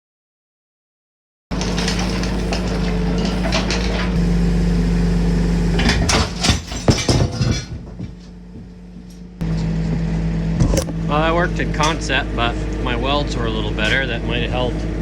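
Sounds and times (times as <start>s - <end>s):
metal clanks and knocks: 1.5s - 4.2s, 5.7s - 10.0s, 13.8s - 14.4s
construction machine engine: 1.5s - 15.0s.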